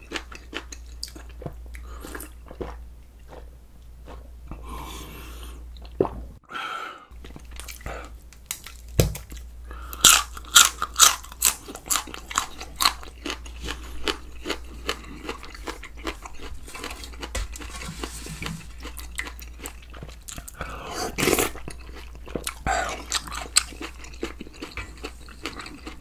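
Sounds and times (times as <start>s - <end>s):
crunching raw vegetables: 7.2s - 26.0s.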